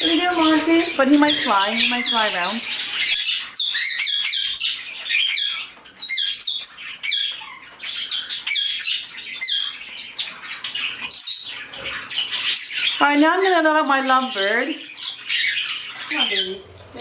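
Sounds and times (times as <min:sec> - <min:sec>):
bird squawk: 0:00.0 - 0:17.0
birds chirping: 0:00.0 - 0:17.0.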